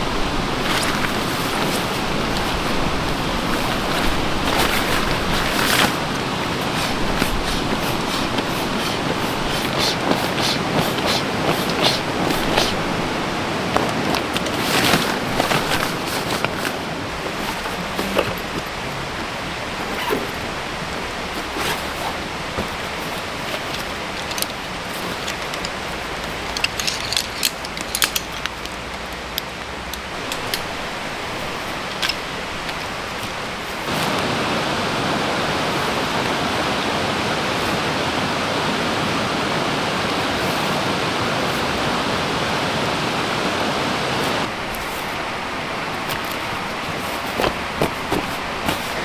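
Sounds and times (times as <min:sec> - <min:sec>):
stream flowing: 0:00.0 - 0:49.0
handling clicks and knocks: 0:00.2 - 0:34.3, 0:44.4 - 0:49.0.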